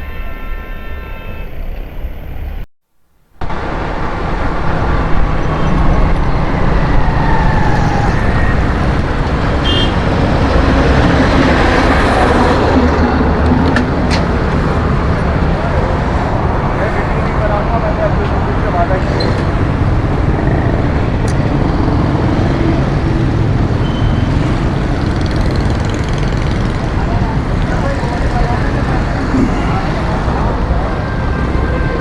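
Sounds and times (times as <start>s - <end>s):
road traffic noise: 3.2s - 32.0s
vehicle horn: 9.6s - 10.3s, 30.6s - 32.0s.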